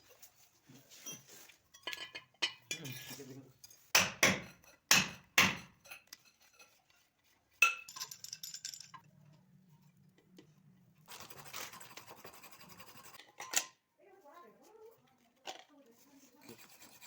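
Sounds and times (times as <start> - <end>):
scraping and rustling: 0.0 - 1.7
metal tools clinking: 0.9 - 3.9, 7.6 - 9.1.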